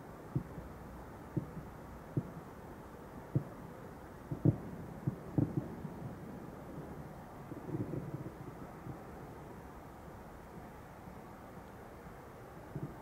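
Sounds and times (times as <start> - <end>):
distant fireworks thuds: 0.3 - 0.7, 1.3 - 2.5, 3.3 - 3.6, 4.3 - 9.4, 12.6 - 13.0.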